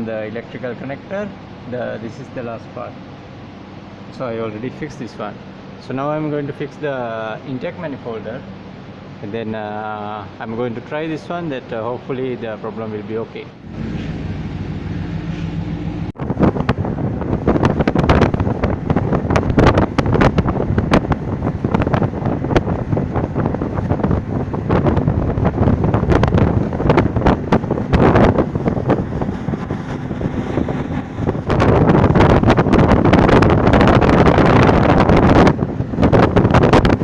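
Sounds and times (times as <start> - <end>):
outboard motor running: 13.5 - 37.0
wind buffeting microphone: 13.6 - 37.0.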